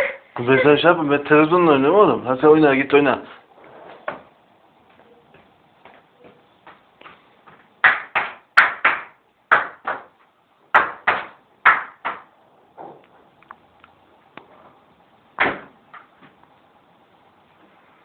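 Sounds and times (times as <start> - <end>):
sharp knocks: 15.4 - 16.1.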